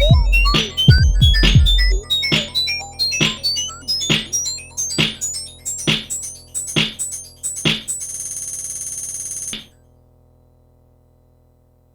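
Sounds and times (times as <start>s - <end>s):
buzzy synth chord: 0.0s - 7.1s
electronic music with drum machine: 0.0s - 9.7s.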